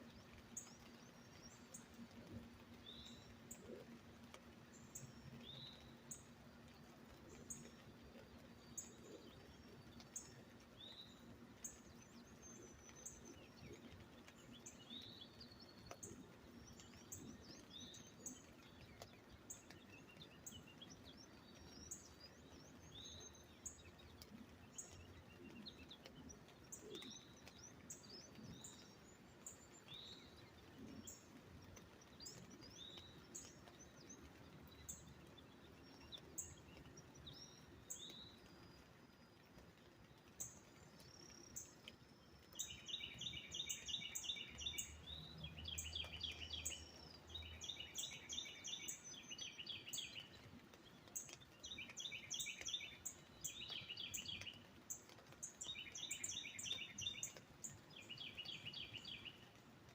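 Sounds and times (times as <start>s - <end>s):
birds chirping: 0.0s - 59.9s
faint background hiss: 0.0s - 59.9s.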